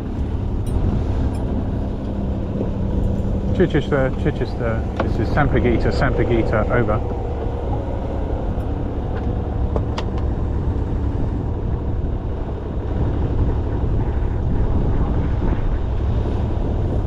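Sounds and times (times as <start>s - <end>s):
boat engine rumbling: 0.0s - 17.0s.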